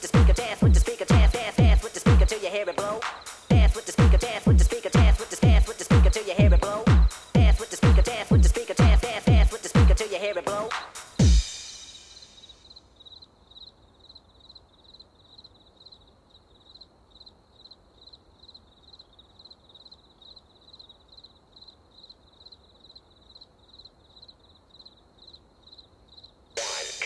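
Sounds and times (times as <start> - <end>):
cricket chirping: 2.7 - 5.9, 6.6 - 7.8, 11.8 - 26.6.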